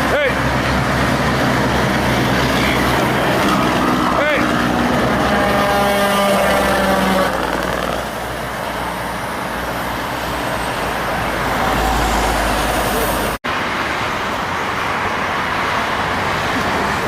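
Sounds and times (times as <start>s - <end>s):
heavy road traffic passing: 0.0s - 17.0s.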